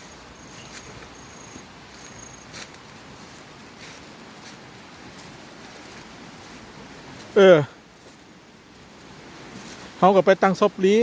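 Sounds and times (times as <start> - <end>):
high-pitched insect chirps: 0.0 - 2.5
steady outdoor hiss: 0.0 - 11.0.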